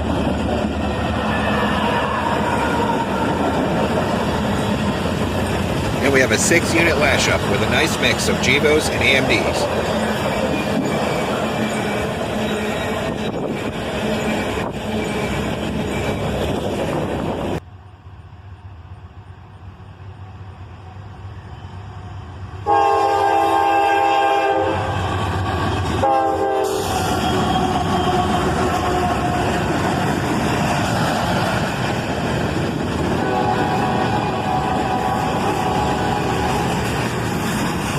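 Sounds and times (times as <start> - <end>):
freight train rumbling past: 0.0 - 37.9
locomotive air horn: 22.6 - 25.0, 26.0 - 29.7, 33.2 - 36.8.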